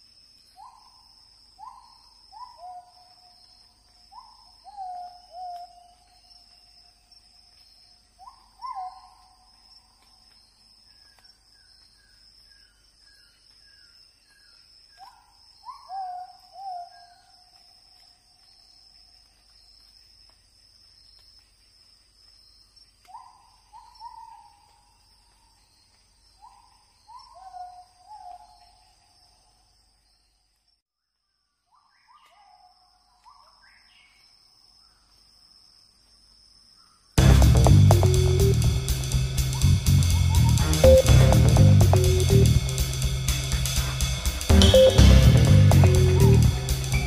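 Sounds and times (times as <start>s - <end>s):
high insect drone: 37.2s - 40.8s, 42.4s - 44.5s
short high bird notes: 37.2s - 47.0s.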